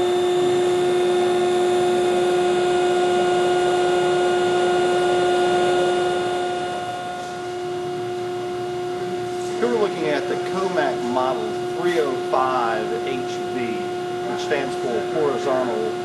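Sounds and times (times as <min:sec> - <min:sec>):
bending machine hum: 0:00.0 - 0:16.0.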